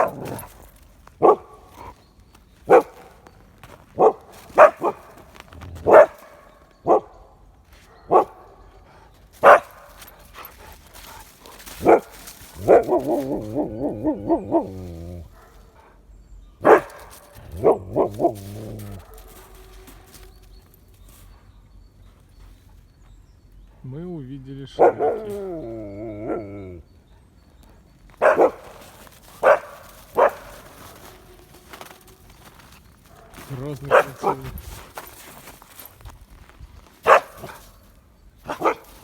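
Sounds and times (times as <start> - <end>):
dog barking: 0.0 - 1.9, 2.7 - 3.3, 3.9 - 8.8, 9.4 - 16.0, 16.6 - 20.4, 24.7 - 32.0, 33.0 - 35.5, 37.0 - 37.8, 38.4 - 39.0
dog yodel-like call: 12.6 - 15.3, 24.8 - 26.9.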